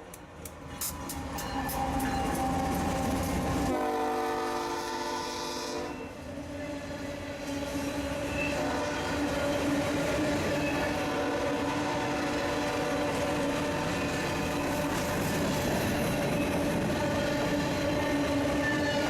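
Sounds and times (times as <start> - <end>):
train rumble: 0.0 - 19.0
locomotive horn chord: 3.7 - 6.2, 11.0 - 13.0.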